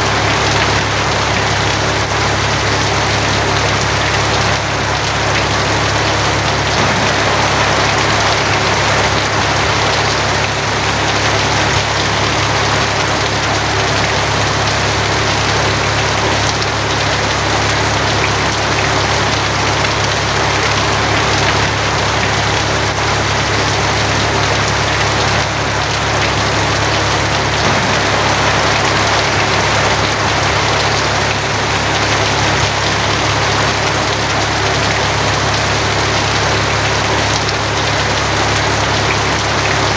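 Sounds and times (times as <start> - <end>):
heavy rain on a tin roof: 0.0 - 39.9
low hum: 6.8 - 10.6, 26.1 - 32.0.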